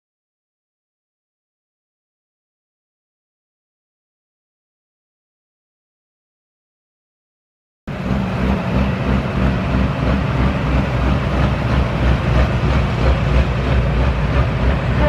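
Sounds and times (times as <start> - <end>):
tractor diesel engine throbbing: 7.9 - 15.0.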